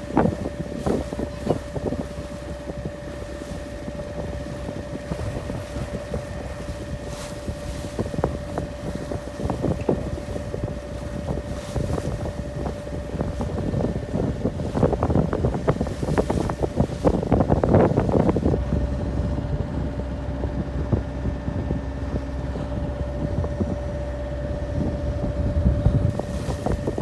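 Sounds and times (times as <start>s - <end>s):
boat engine humming: 0.0s - 27.0s
wind buffeting microphone: 0.0s - 27.0s.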